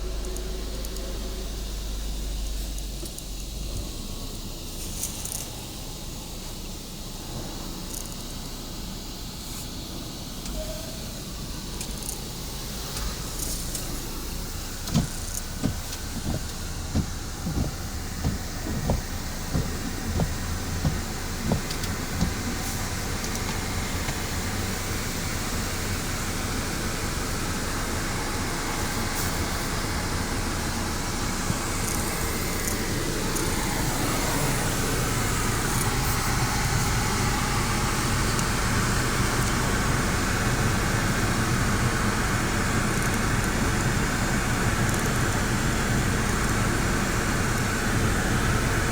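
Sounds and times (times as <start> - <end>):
car wash machinery and water rushing: 0.0 - 48.9
regular thumping: 14.7 - 24.3.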